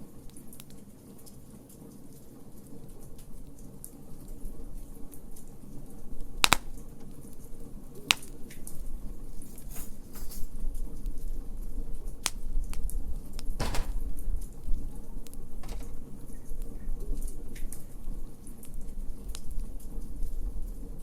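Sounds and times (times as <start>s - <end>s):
wood fire crackling: 0.1s - 9.8s
fire popping: 6.2s - 8.8s.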